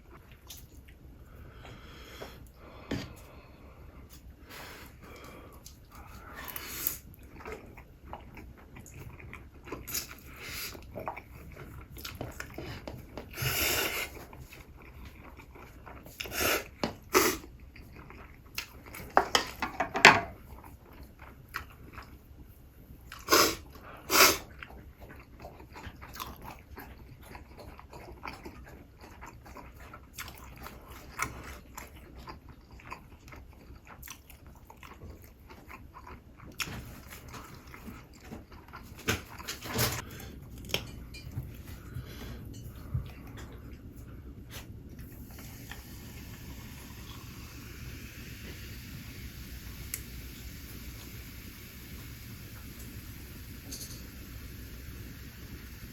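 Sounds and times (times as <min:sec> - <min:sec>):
chewing crispy fried chicken: 0:05.0 - 0:13.4, 0:14.0 - 0:19.2, 0:20.4 - 0:40.9.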